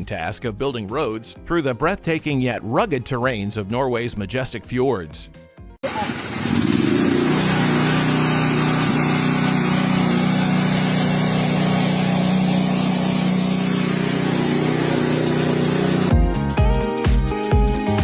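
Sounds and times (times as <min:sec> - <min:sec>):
loud hiss: 0:05.9 - 0:16.1
machinery engine drone: 0:05.9 - 0:16.1.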